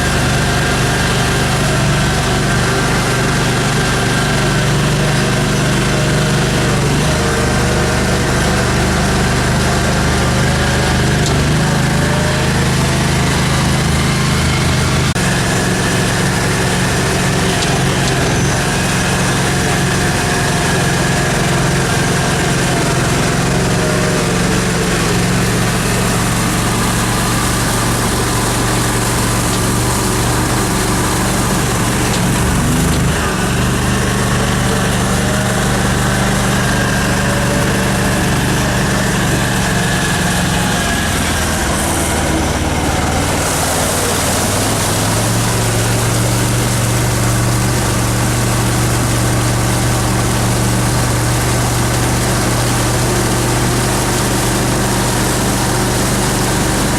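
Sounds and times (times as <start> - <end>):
outboard motor running: 0.0 - 56.9.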